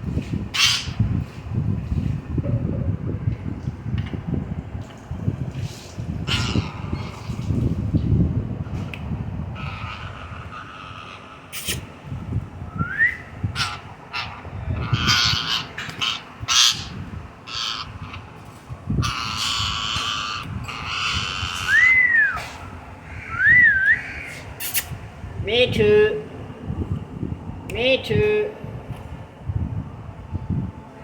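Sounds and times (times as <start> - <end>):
parrot squawking: 0.6 - 1.0, 6.3 - 7.2, 9.6 - 11.9, 13.5 - 18.3, 19.0 - 22.4
parrot whistling: 21.1 - 22.4, 23.3 - 24.3.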